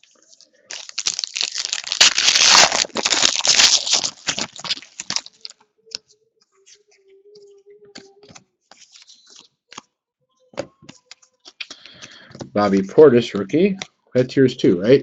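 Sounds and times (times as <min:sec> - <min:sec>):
plastic wrapper crinkling: 0:00.0 - 0:06.0, 0:08.0 - 0:09.8.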